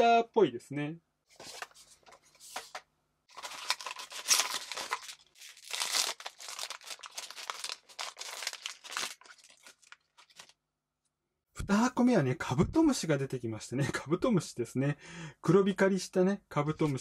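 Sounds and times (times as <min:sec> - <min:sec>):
foil bag crinkling and tearing: 0:03.3 - 0:10.6.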